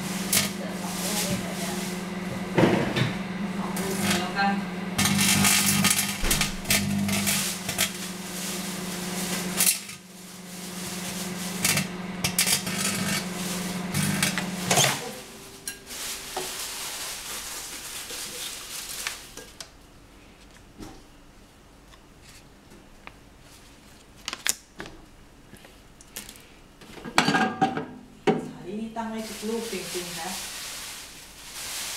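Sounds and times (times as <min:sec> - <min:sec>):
microwave oven humming: 0:00.0 - 0:17.4
crackling electric sparks: 0:03.8 - 0:15.2, 0:29.2 - 0:31.9.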